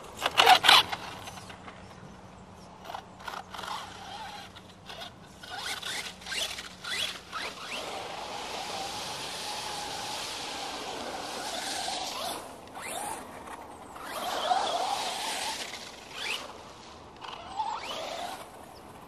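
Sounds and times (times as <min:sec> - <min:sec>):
electric motor whining: 0:02.8 - 0:13.2, 0:13.9 - 0:16.6, 0:17.2 - 0:18.6.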